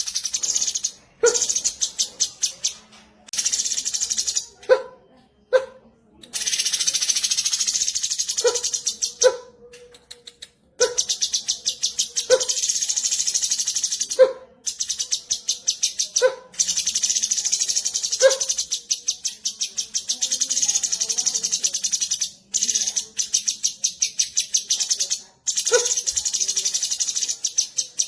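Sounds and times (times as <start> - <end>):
bird singing rapid rattling song: 0.0 - 4.7, 6.3 - 9.5, 10.8 - 28.0.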